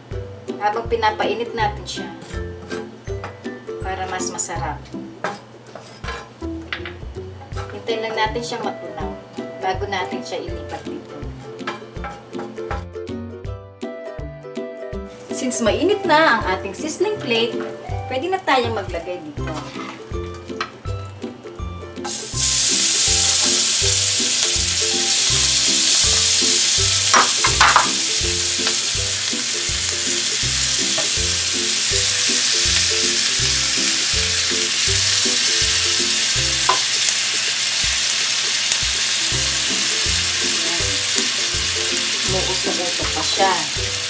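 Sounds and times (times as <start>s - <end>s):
food sizzling on hot plate: 22.0s - 44.0s.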